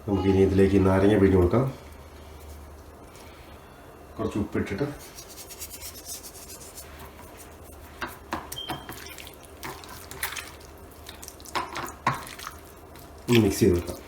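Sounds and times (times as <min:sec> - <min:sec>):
drips: 0:08.5 - 0:14.0
wet squelches: 0:08.5 - 0:14.0.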